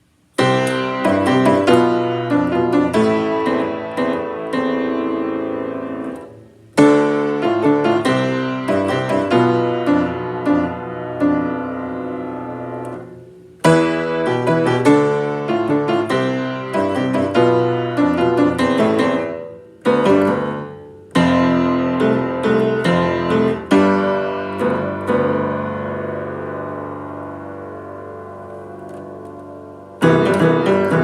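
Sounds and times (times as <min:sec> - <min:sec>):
solo piano piece: 0:00.0 - 0:31.0.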